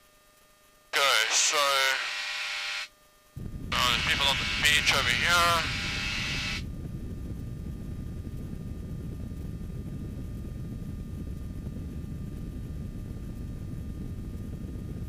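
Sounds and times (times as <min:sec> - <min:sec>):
airflow past cockpit: 0:03.7 - 0:06.6.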